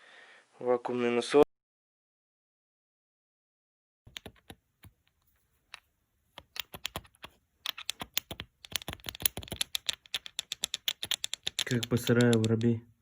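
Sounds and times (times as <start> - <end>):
hard parts clicking and rattling: 4.1 - 12.8.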